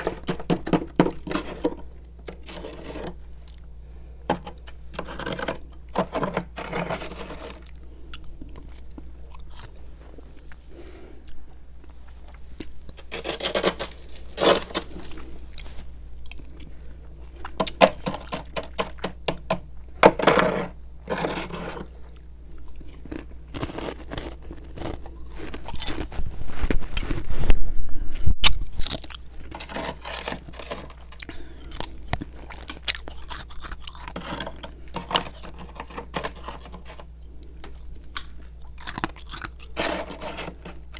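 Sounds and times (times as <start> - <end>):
frost scraping: 0.0 - 3.2, 4.3 - 7.7, 12.4 - 16.0, 17.5 - 21.9, 29.4 - 31.5, 33.3 - 37.1, 39.7 - 40.9
crunchy chewing of ice: 0.0 - 11.4, 12.2 - 27.5, 28.4 - 40.9.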